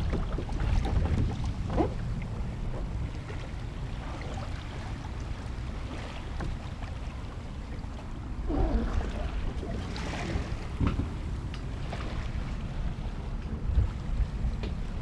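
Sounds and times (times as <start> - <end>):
water splashing: 0.0 - 13.3
wind rumbling on microphone: 0.0 - 15.0
small knocks on kayak: 10.8 - 11.2, 14.6 - 14.8.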